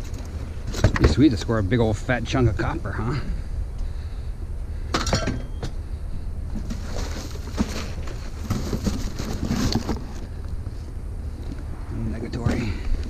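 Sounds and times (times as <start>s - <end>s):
items rustling and knocking: 0.0s - 1.4s, 4.9s - 5.8s, 6.5s - 11.6s
low rumble: 0.0s - 9.2s, 9.9s - 13.0s.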